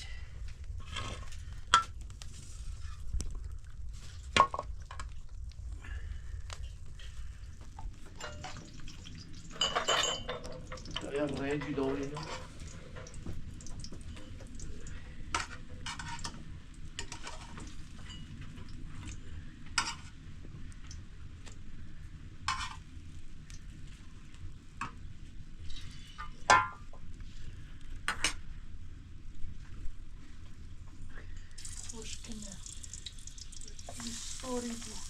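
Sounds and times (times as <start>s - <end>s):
utensil stirring in a pot: 7.0s - 13.2s, 31.6s - 35.0s
sizzling hiss: 31.6s - 35.0s.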